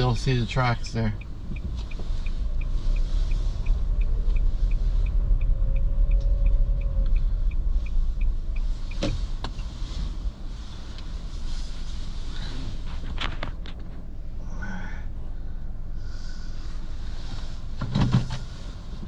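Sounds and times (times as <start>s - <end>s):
faint regular ticking: 0.0s - 9.7s
car engine and road noise: 0.0s - 19.0s.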